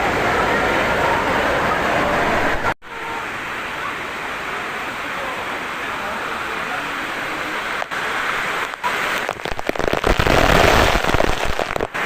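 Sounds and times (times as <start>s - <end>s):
falling water rushing: 0.0s - 12.0s
water splashing and crackling: 7.6s - 12.0s.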